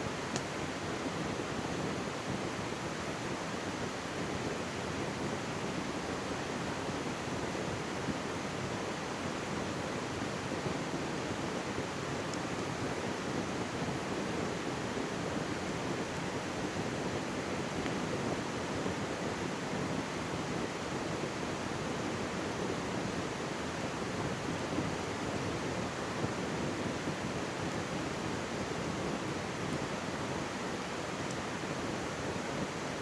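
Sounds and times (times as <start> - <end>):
faint campfire crackle: 0.0 - 33.0.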